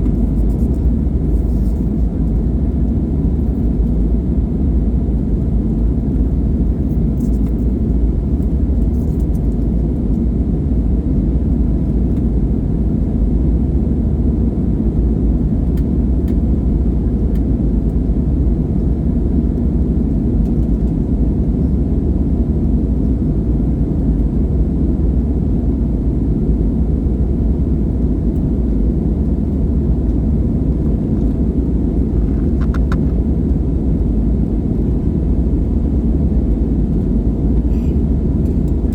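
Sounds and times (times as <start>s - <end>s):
jet engines rumbling: 28.4s - 38.9s.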